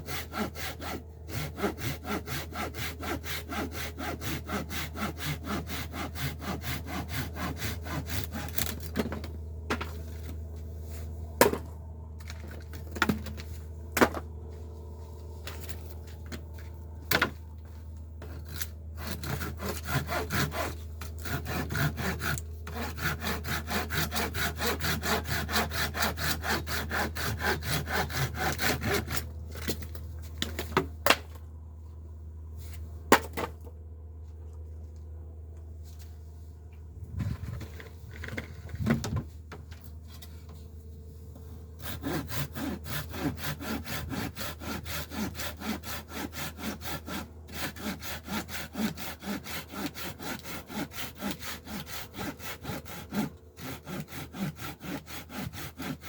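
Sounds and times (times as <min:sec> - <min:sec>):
hand saw cutting wood: 0:00.0 - 0:11.6, 0:18.2 - 0:30.8, 0:41.8 - 0:56.0.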